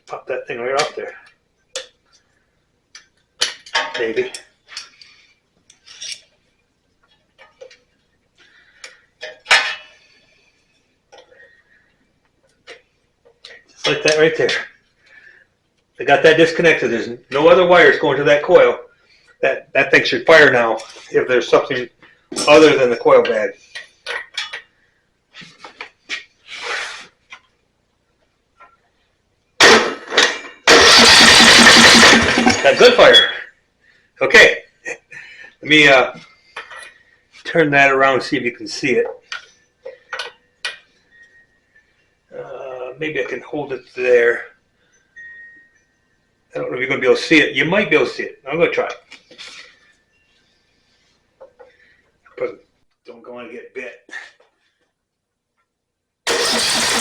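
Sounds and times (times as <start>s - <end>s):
mower engine cranked by starter: 29.6s - 33.2s, 56.3s - 57.0s
sharp metal clank: 56.3s - 57.0s.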